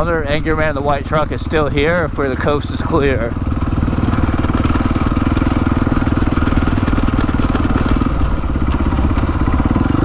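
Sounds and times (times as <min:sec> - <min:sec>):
dirt bike engine running: 0:00.0 - 0:10.0.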